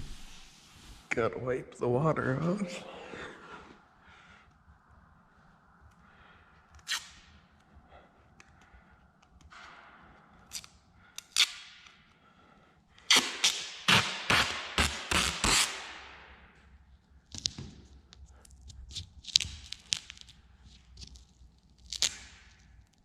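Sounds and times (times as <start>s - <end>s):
masking tape ripping: 13.1s - 15.9s, 21.8s - 22.6s.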